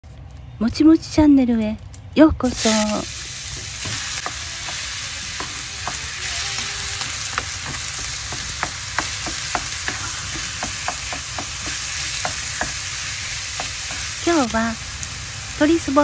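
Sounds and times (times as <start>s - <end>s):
meat sizzling in hot oil: 2.5s - 16.0s
spatula scraping and tapping pan: 3.5s - 12.8s.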